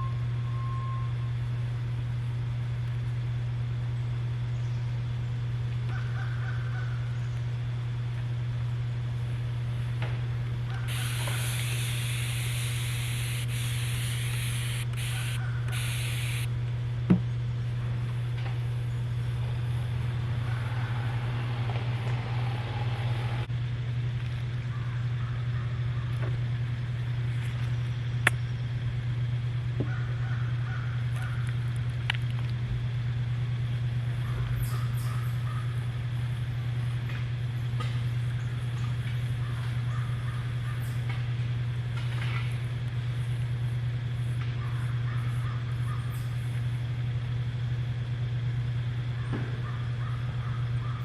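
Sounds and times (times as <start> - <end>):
steady low hum: 0.0 - 51.0
sharp clicks: 10.9 - 16.5
spray bottle hissing: 10.9 - 16.5.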